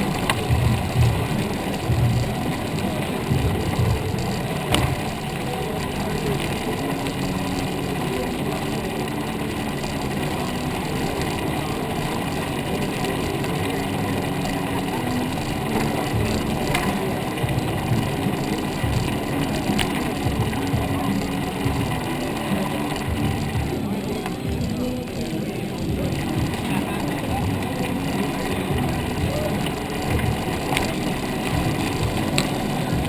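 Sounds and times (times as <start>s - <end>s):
bicycle riding rumble: 0.0s - 33.0s.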